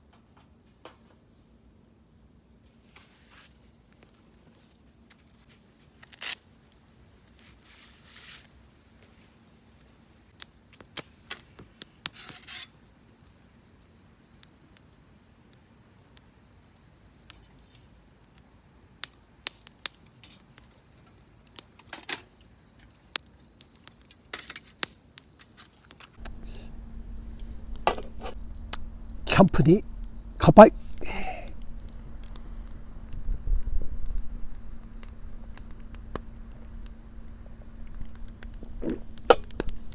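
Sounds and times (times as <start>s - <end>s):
cricket trilling: 26.2s - 39.9s
low hum: 26.2s - 39.9s.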